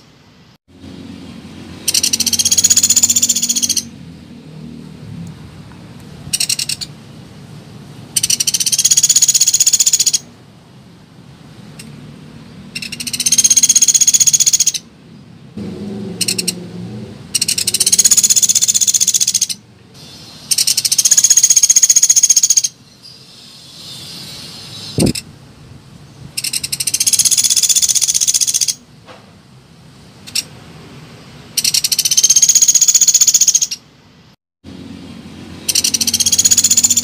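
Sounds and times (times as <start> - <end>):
woodpecker rattling calls: 1.8 - 3.9, 6.3 - 6.9, 8.1 - 10.3, 12.7 - 14.9, 16.2 - 16.6, 17.3 - 19.6, 20.5 - 25.2, 26.4 - 28.8, 30.3 - 30.5, 31.6 - 33.8, 35.6 - 37.0.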